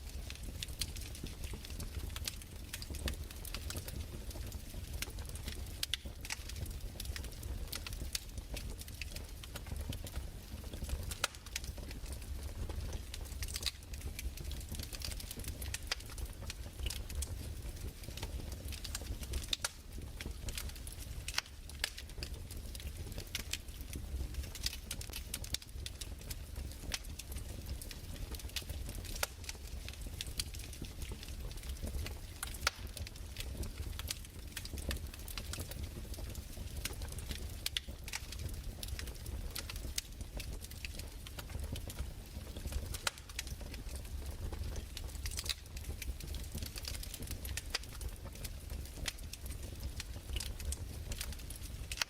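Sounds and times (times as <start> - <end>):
fire crackling: 0.0 - 52.0.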